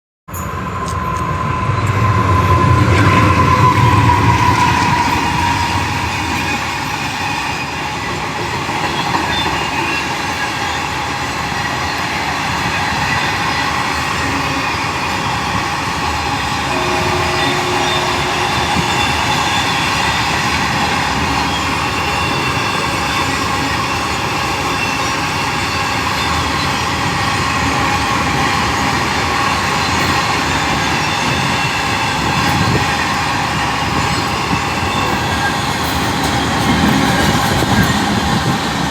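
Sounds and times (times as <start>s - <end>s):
freight train passing over rails: 0.3s - 38.9s.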